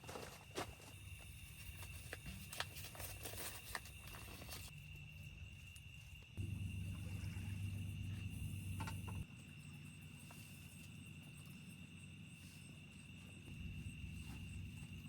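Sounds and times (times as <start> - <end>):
crickets chirring: 0.0 - 15.0
low rumble: 6.4 - 9.2.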